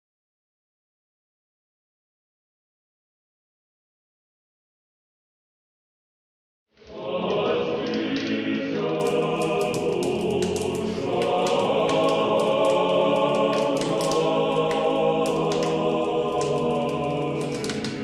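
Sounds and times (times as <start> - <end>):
choir singing held chords: 6.8 - 18.0.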